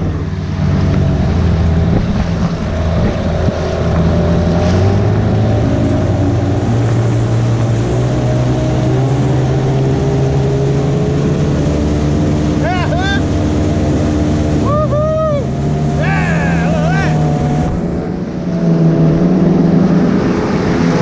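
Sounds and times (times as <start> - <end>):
wind buffeting microphone: 0.0 - 12.4
outboard motors running: 0.0 - 21.0
water rushing past hull: 0.0 - 21.0.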